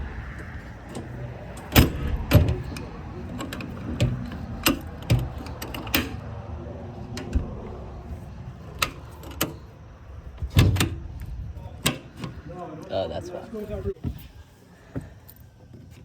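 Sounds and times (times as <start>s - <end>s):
doors and latches clicking: 0.0s - 6.4s, 7.1s - 12.5s
steady low rumble: 0.0s - 12.5s.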